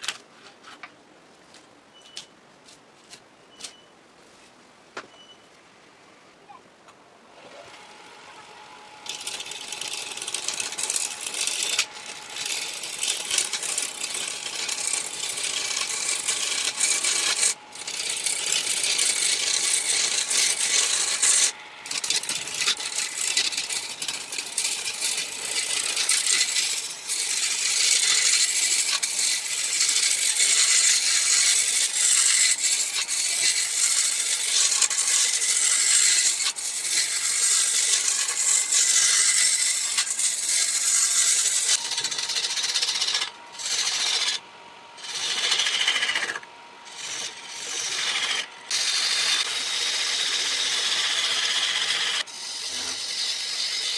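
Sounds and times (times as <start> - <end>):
faint lathe hum: 7.4 - 53.9
lathe tool scraping wood: 7.4 - 53.9.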